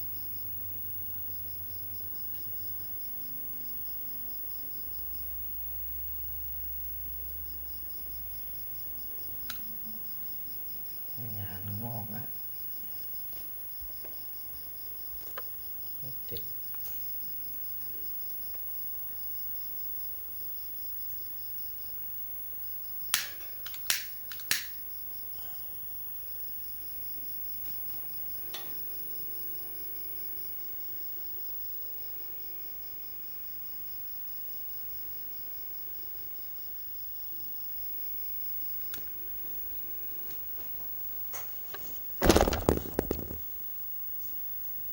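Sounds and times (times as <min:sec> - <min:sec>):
crickets chirping: 0:00.0 - 0:34.7
sharp clicks: 0:23.1 - 0:24.8.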